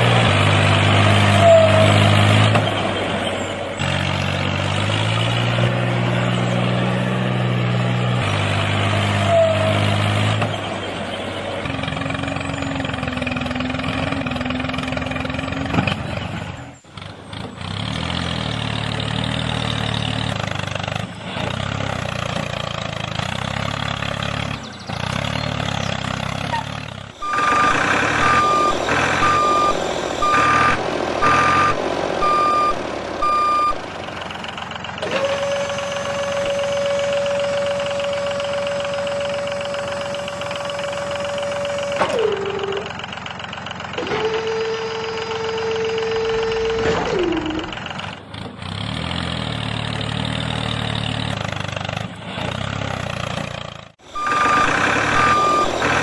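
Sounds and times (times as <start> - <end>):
diesel engine rumbling: 0.0 - 56.0
reversing alarm beeping: 27.2 - 33.8, 35.1 - 42.9, 44.1 - 47.8, 54.0 - 56.0.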